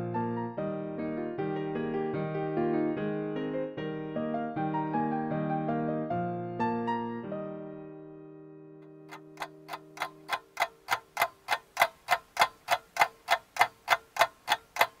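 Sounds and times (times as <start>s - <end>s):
held piano notes: 8.8s - 15.0s
steady ticking: 8.8s - 15.0s.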